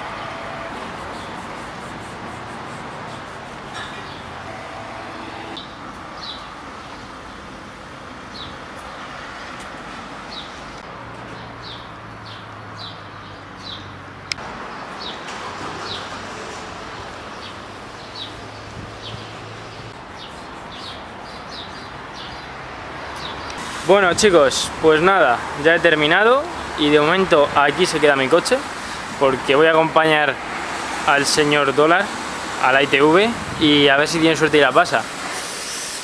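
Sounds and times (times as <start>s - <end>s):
small birds chirping: 17.4s - 22.6s.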